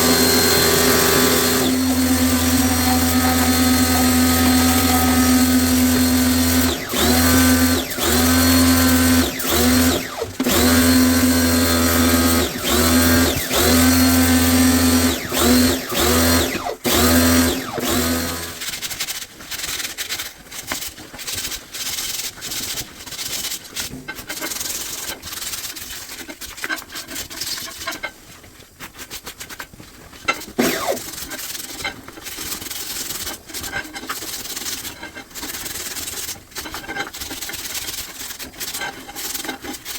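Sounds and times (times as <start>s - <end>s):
power drill whirring in bursts: 0.0s - 18.6s, 30.6s - 31.2s
rubbing and scraping: 0.0s - 39.9s.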